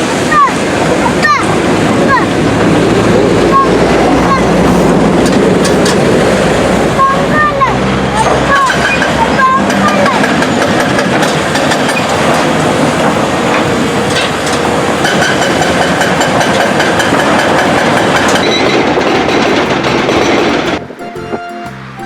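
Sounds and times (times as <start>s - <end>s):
heavy machinery rattling and clanking: 0.8s - 7.1s, 7.9s - 20.9s
music: 19.2s - 22.0s.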